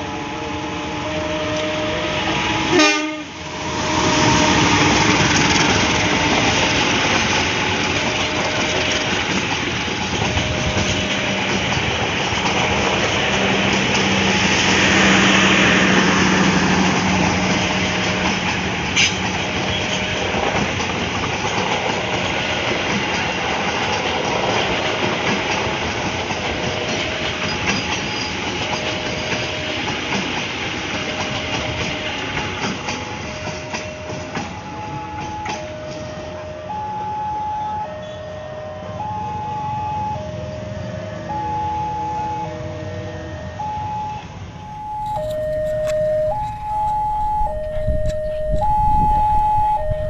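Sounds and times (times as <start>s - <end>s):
locomotive engine tone: 0.0s - 21.6s, 41.3s - 50.0s
train rolling past rumbling: 0.0s - 36.7s, 44.3s - 50.0s
wheels clicking over rail joints: 4.6s - 36.3s.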